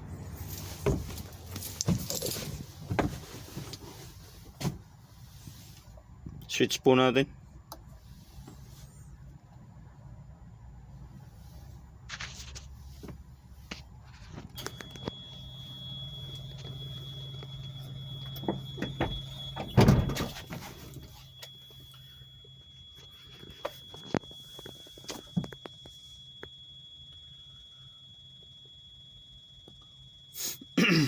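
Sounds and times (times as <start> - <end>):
refrigeration unit low hum: 0.0 - 31.0
steady high-pitched tone: 14.2 - 31.0.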